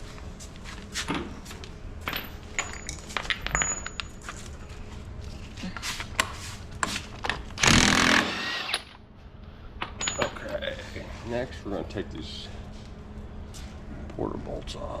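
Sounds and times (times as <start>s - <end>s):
metal tools clinking: 2.1s - 4.5s, 10.0s - 10.7s.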